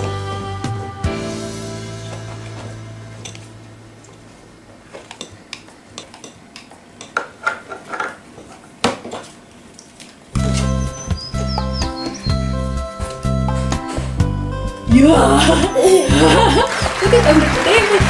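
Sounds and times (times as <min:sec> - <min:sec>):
plastic tools clattering: 0:07.1 - 0:08.2.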